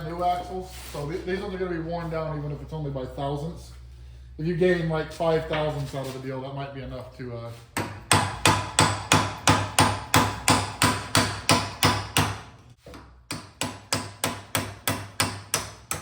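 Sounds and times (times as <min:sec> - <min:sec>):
hammer striking steel: 0:07.8 - 0:12.5, 0:13.3 - 0:16.0.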